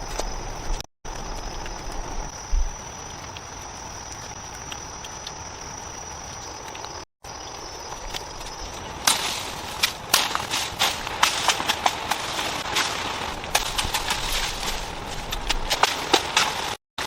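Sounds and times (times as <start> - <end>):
insect chorus: 0.0 - 16.8
low thump: 2.5 - 2.8.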